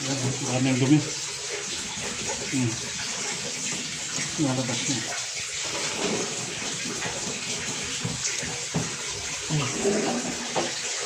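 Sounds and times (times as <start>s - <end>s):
water draining steadily: 0.0s - 11.0s
knocks: 8.0s - 9.0s.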